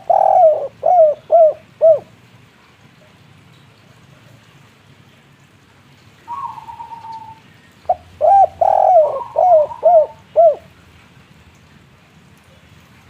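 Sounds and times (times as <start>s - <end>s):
dove cooing: 0.0s - 2.1s, 6.3s - 10.7s.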